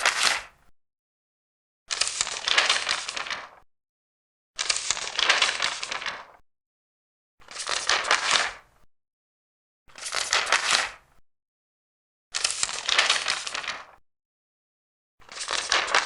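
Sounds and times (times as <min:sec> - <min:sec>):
paper pages being turned: 0:00.0 - 0:00.6, 0:01.9 - 0:03.6, 0:04.6 - 0:06.4, 0:07.4 - 0:08.6, 0:10.0 - 0:11.0, 0:12.4 - 0:14.0, 0:15.2 - 0:16.0.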